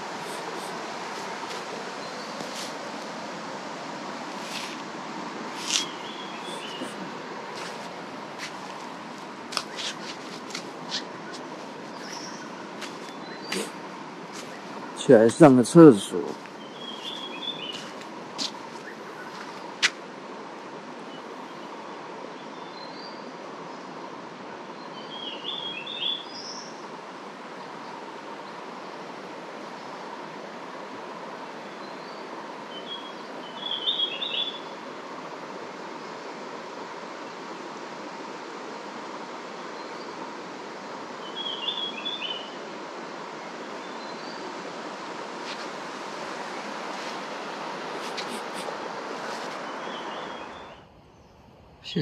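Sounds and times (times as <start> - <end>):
creek flowing: 0.0 - 50.8
bird chirping: 5.6 - 8.6, 9.5 - 13.8, 14.4 - 18.0, 31.8 - 34.7, 41.2 - 42.6, 48.0 - 52.0.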